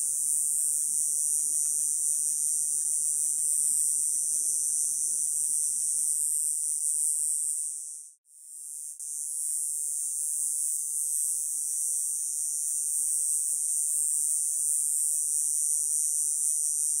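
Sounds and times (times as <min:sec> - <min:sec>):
cicada buzzing: 0:00.0 - 0:07.5.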